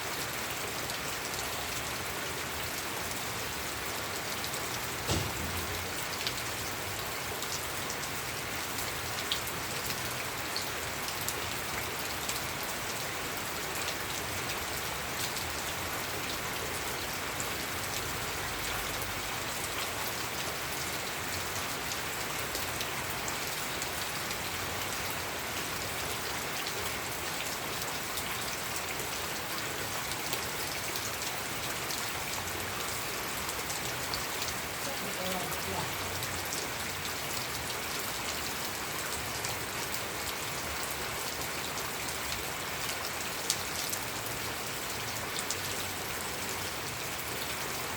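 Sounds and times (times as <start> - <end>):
rain falling on a surface: 0.0 - 47.9.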